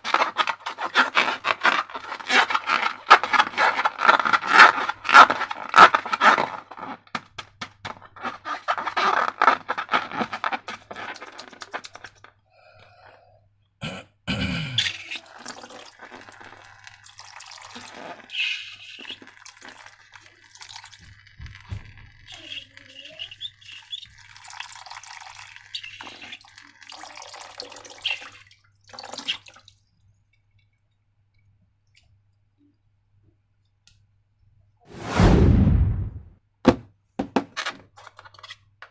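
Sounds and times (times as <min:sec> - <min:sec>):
slime dripping: 0:15.1 - 0:32.1.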